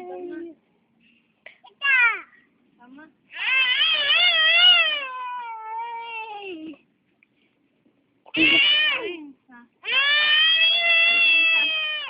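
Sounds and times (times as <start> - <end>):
young child crying: 8.3 - 9.2, 9.8 - 12.0.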